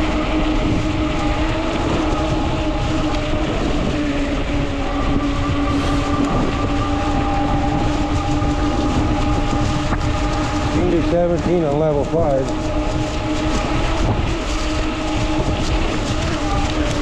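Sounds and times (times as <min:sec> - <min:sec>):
electric motor whine: 0:00.0 - 0:17.0
fat tires rolling: 0:00.0 - 0:17.0
wind rushing across microphone: 0:00.0 - 0:17.0.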